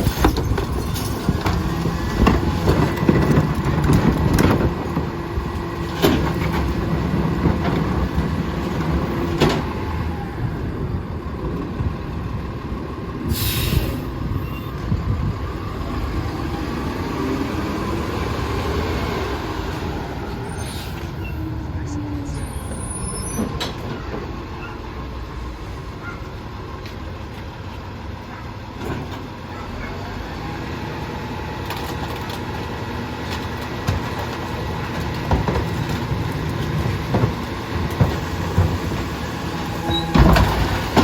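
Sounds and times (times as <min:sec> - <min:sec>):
knocks and clanks: 0:00.0 - 0:09.7, 0:39.8 - 0:41.0
garbage truck running: 0:00.0 - 0:41.0.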